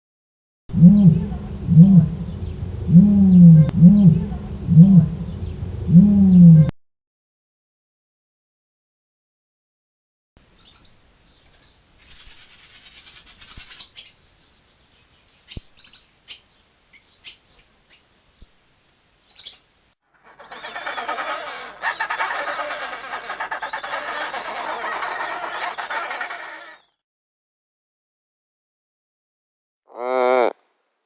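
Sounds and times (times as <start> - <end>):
dense chorus of bird calls: 1.2 - 6.6, 20.2 - 27.0.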